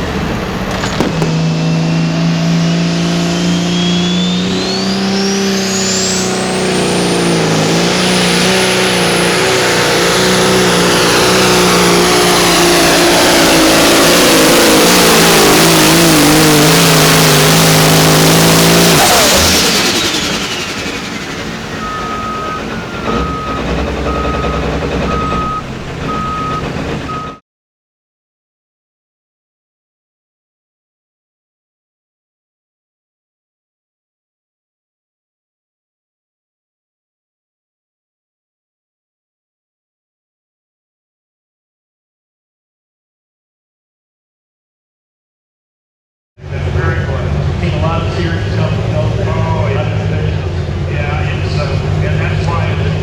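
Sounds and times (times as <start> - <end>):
engine at full power: 0.0 - 27.4, 46.4 - 53.0
turbo whine: 18.0 - 27.4
backup alarm beeping: 21.7 - 27.4.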